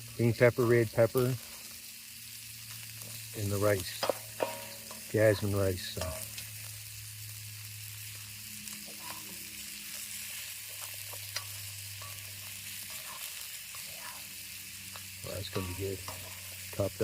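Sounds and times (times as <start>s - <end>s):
stir fry sizzling in a pan: 0.0s - 17.0s.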